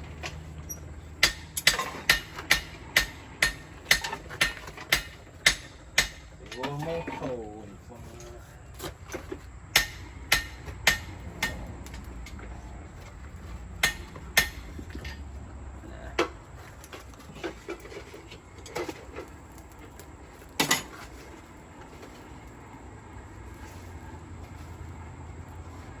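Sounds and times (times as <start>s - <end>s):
metal clanks of blacksmith tools: 0.2s - 7.4s, 8.2s - 12.4s, 13.8s - 15.3s, 20.6s - 21.2s.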